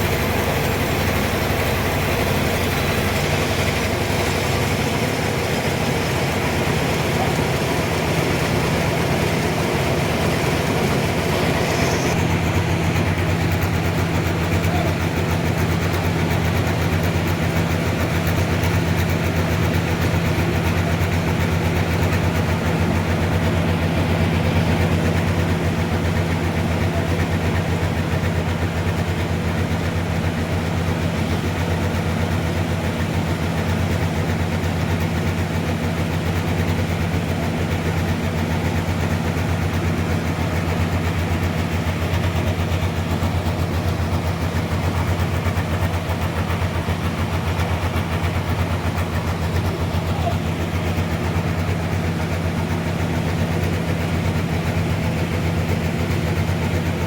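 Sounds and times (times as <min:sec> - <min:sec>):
sawmill machinery hum: 0:00.0 - 0:57.0
machinery hiss: 0:09.2 - 0:12.6.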